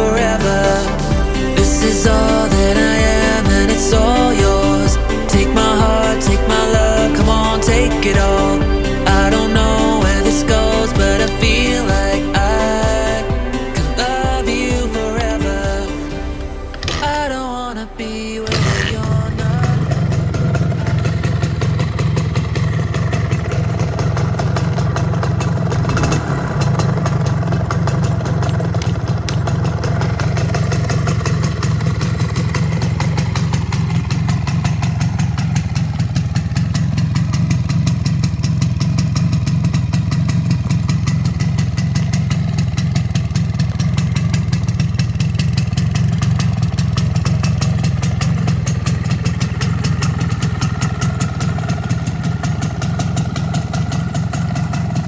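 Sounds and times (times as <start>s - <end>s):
two-stroke engine idling: 0.0s - 55.0s.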